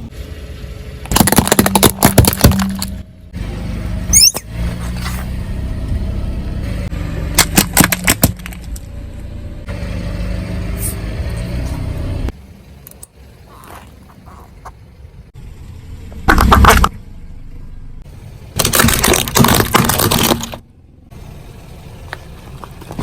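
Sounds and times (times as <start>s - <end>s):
car engine running: 0.0s - 23.0s
sharp crack: 1.0s - 3.0s, 7.3s - 8.9s
crunching cracks: 1.1s - 2.9s, 18.6s - 20.6s.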